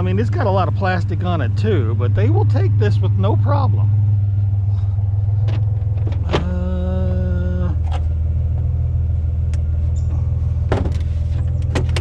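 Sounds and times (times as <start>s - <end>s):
steady pitched hum: 0.0s - 11.8s
vehicle engine idling: 0.0s - 12.0s.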